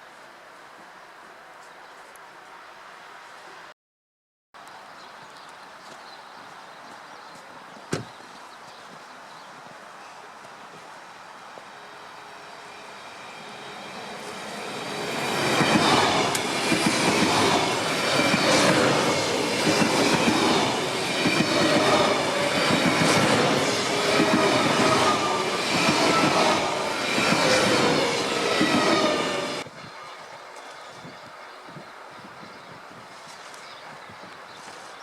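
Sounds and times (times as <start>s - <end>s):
passenger train rolling on rails: 10.0s - 29.8s.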